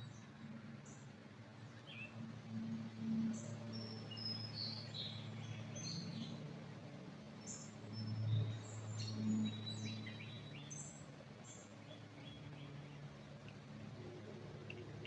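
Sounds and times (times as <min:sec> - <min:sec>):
low steady hum: 0:00.0 - 0:15.0
songbirds chirping: 0:00.0 - 0:15.0.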